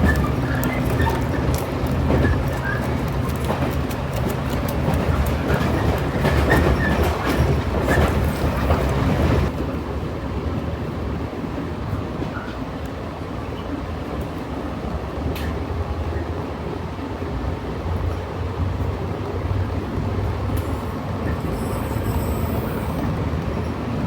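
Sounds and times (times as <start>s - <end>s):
wheels clicking and rattling: 0.0s - 9.6s
train rumbling on rails: 0.0s - 24.0s.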